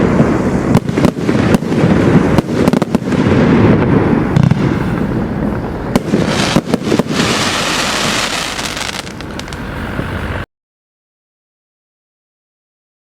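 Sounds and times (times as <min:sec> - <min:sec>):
firework bangs and crackling: 0:00.0 - 0:10.4
hissing crackle: 0:00.0 - 0:10.5.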